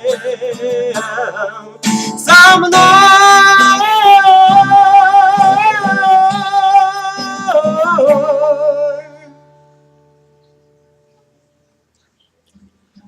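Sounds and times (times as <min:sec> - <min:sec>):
man singing with vibrato: 0:00.0 - 0:09.7
strummed guitar chords: 0:00.0 - 0:11.0.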